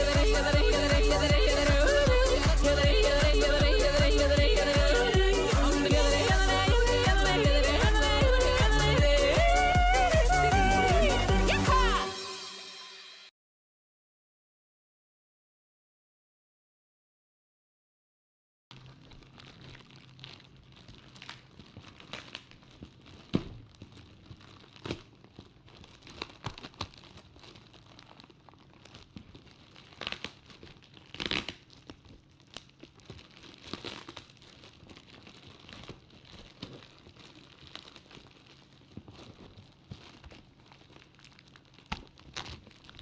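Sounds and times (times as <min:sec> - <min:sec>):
packaging crinkling and tearing: 0:18.7 - 0:43.0.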